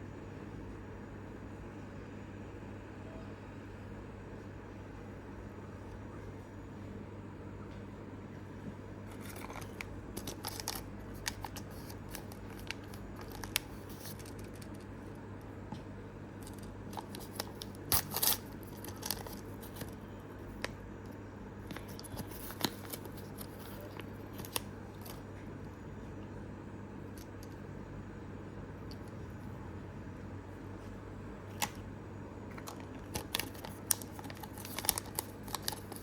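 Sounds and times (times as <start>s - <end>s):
steady low hum: 0.0s - 36.0s
plastic toys and packaging handled: 9.1s - 14.9s, 16.4s - 20.8s, 21.6s - 25.2s, 32.5s - 36.0s.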